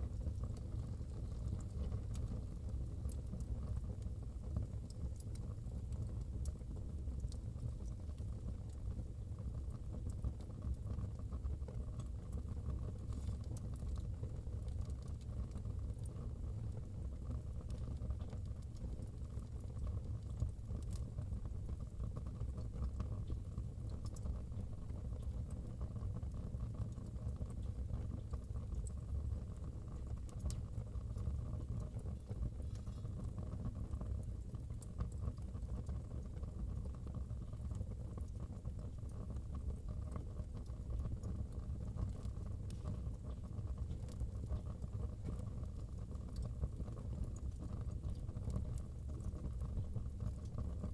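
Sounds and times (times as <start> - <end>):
fire low rumble: 0.0 - 25.6
wood fire crackling and popping: 0.1 - 50.9.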